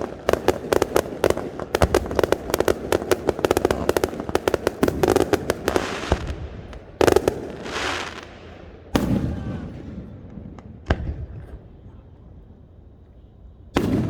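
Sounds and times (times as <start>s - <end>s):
fireworks hissing crackle: 0.0s - 9.2s
fireworks bangs: 0.0s - 12.8s, 13.6s - 14.0s.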